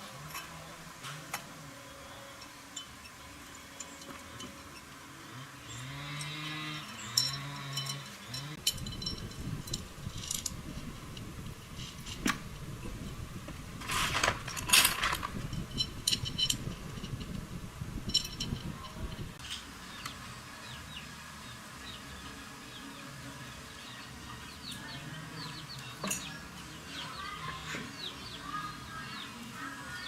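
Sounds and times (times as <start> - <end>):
metal parts and tools clinking: 0.0 - 19.6, 24.7 - 28.7
metal scrape: 11.7 - 17.4.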